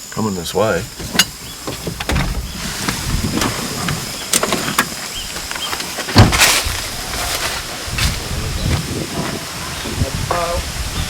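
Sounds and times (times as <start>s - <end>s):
vehicle rumble: 0.0s - 10.9s
knocks and rattles: 0.7s - 5.4s.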